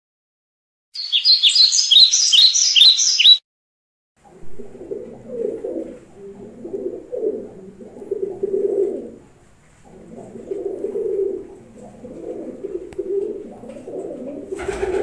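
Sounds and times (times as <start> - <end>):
songbird chirping high notes: 1.0 - 3.4
pigeon cooing: 4.2 - 15.0.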